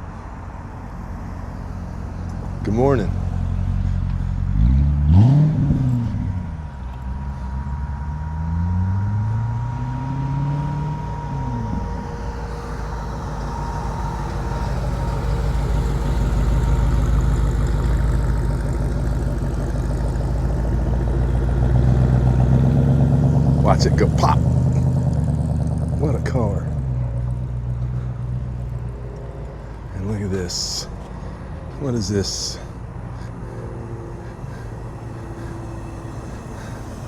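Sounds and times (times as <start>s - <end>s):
cars driving past slowly: 0.0s - 37.0s
engine revving: 0.0s - 37.0s.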